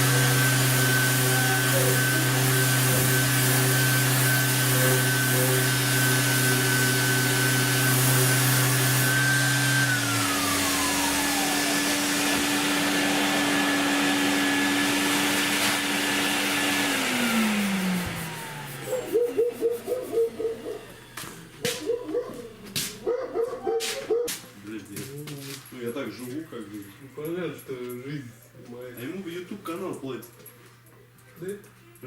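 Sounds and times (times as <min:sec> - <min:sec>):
electric power tool whining: 0:00.0 - 0:23.0
workshop vacuum running: 0:00.0 - 0:31.7.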